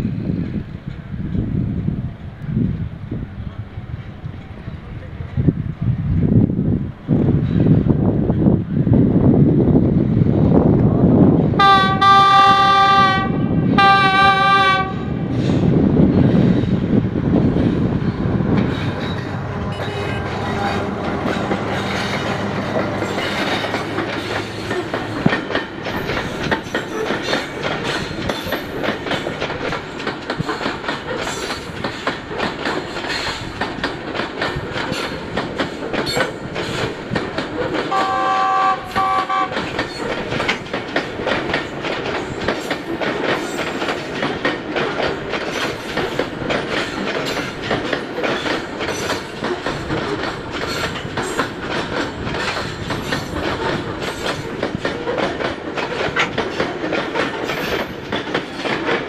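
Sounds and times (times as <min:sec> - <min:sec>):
diesel locomotive engine drone: 0:00.0 - 0:59.0
two-pitch horn blasts: 0:11.6 - 0:15.3, 0:37.9 - 0:39.6
wagon wheels clattering over rail joints: 0:16.2 - 0:38.3, 0:38.9 - 0:59.0.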